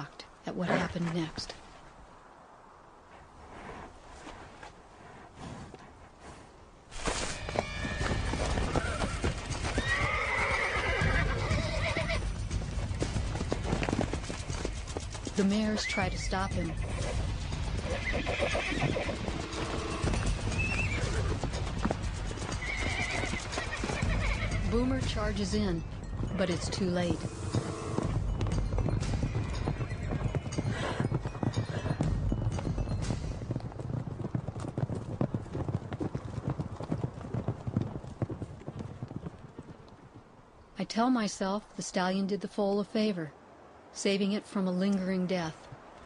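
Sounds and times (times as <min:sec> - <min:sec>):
hoofbeats and scuffling: 0:03.1 - 0:40.3
horses squealing and whinnying: 0:07.0 - 0:24.9, 0:26.2 - 0:32.6
background music: 0:09.4 - 0:34.4.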